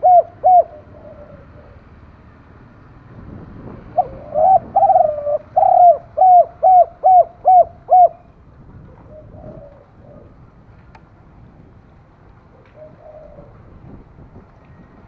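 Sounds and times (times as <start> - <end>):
dove cooing: 0.0 - 2.0, 3.8 - 10.4, 12.5 - 13.7.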